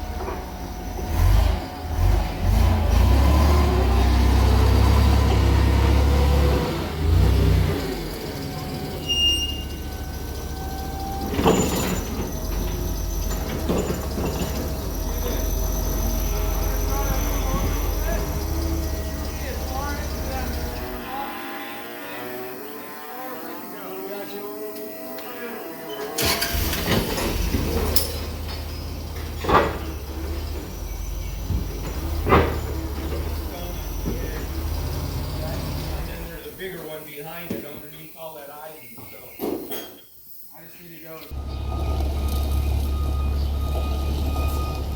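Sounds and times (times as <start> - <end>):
vehicle engine running: 0.0 - 21.4, 26.2 - 36.8, 41.3 - 44.9
loud knocks: 29.2 - 35.4.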